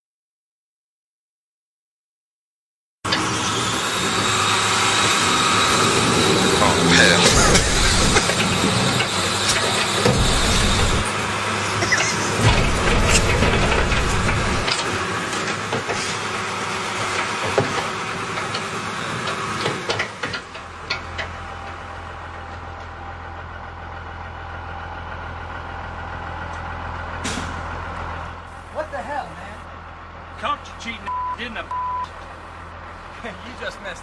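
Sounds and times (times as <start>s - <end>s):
heavy machinery engine running: 3.1s - 34.0s
metal clanks and crunching knocks: 7.0s - 11.2s, 11.8s - 16.1s.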